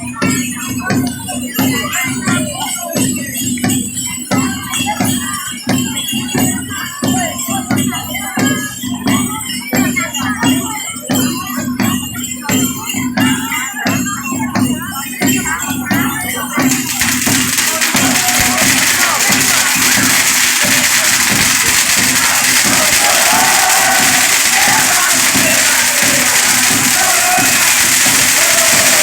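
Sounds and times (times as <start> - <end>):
jingling tambourines: 0.0 - 29.0
shakers: 0.0 - 29.0
drums beating: 14.6 - 29.0.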